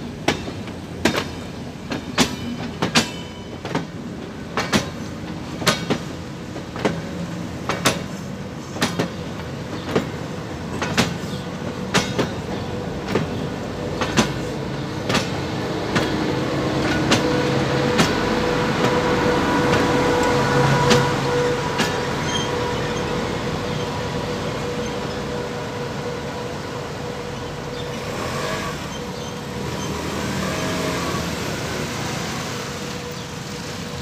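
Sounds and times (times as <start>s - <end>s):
wheels clicking over rail joints: 0.0s - 25.4s
locomotive hum: 0.0s - 34.0s
train rolling rumble: 0.0s - 34.0s.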